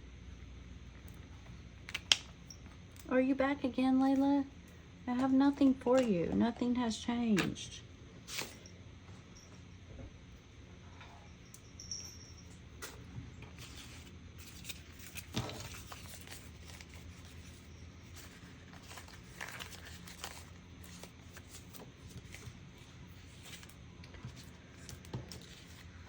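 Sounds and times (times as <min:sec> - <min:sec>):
steady low hum: 0:00.0 - 0:26.0
paper rustling: 0:13.6 - 0:26.0.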